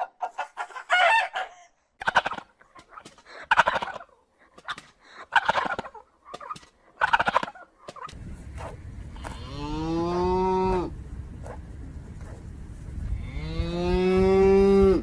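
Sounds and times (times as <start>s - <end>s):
poultry calling: 5.2s - 11.6s
cow mooing: 9.2s - 10.9s, 13.1s - 15.0s.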